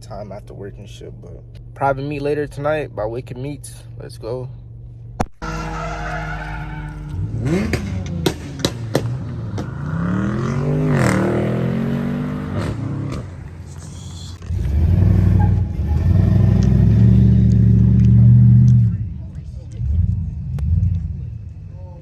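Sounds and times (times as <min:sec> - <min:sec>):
deep engine rumble: 0:00.0 - 0:22.0
car engine revving: 0:05.2 - 0:21.6
sharp engine pops: 0:07.6 - 0:09.8.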